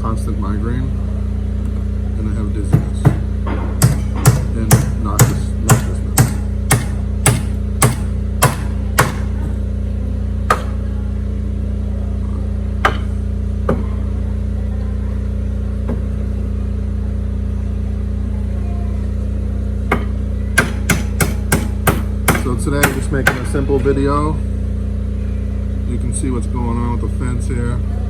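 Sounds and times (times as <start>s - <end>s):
steady low hum: 0.0s - 28.0s
hammer striking: 2.7s - 9.6s, 10.5s - 10.8s, 12.8s - 13.8s, 19.9s - 24.2s.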